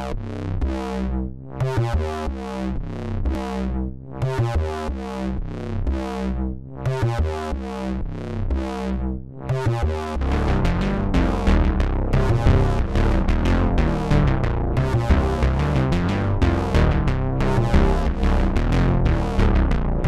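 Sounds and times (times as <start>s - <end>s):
low bass line: 0.0s - 20.0s
synthesizer chords: 10.2s - 20.0s.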